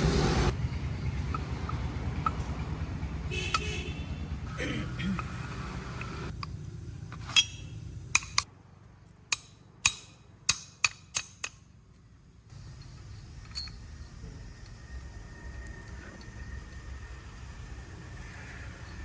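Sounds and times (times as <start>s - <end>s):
metal striking metal: 7.3s - 8.5s, 9.3s - 11.7s.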